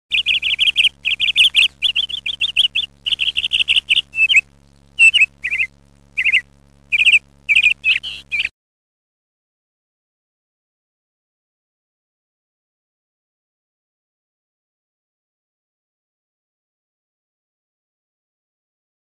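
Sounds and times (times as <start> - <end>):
bird chirping: 0.1 - 8.5
faint low hum: 0.1 - 8.5.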